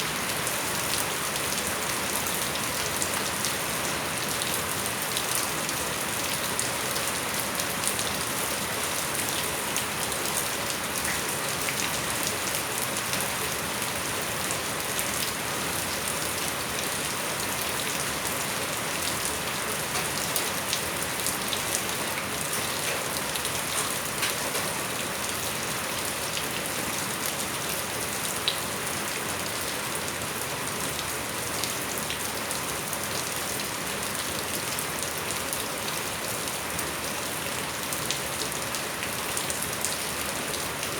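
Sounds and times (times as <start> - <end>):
steady rain falling: 0.0 - 40.9
ticks of raindrops: 19.3 - 25.3.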